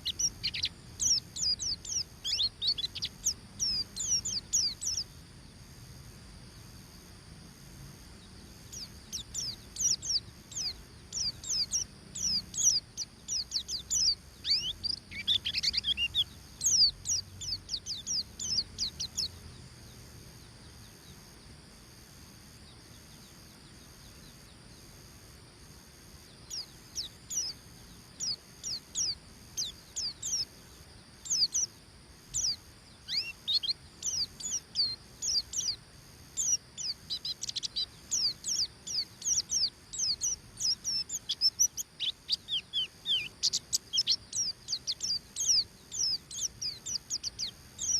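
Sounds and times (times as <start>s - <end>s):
bird singing rapid high chirps: 0.0s - 5.2s, 8.6s - 19.6s, 26.4s - 30.6s, 31.2s - 47.9s.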